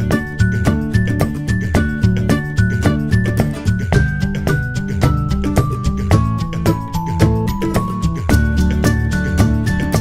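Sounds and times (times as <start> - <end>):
upbeat instrumental music: 0.0 - 10.0.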